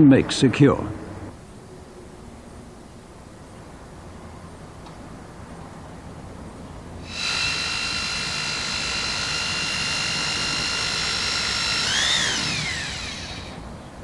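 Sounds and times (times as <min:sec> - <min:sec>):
electric drill whining: 0:07.0 - 0:13.7.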